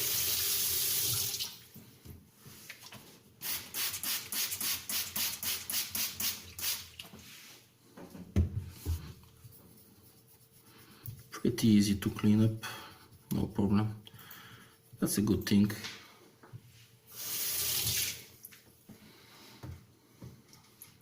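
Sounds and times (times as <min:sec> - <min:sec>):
running tap water: 0:00.0 - 0:01.6, 0:17.2 - 0:18.3.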